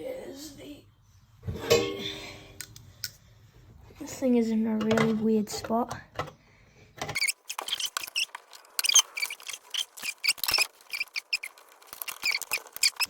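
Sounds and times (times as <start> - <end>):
metal parts squeaking and clicking: 7.1 - 13.0.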